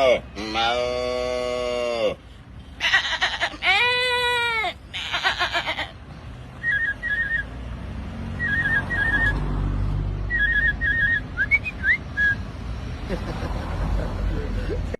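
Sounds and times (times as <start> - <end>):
person whistling birdcall imitation: 6.6 - 7.5, 8.4 - 9.4, 10.3 - 12.5.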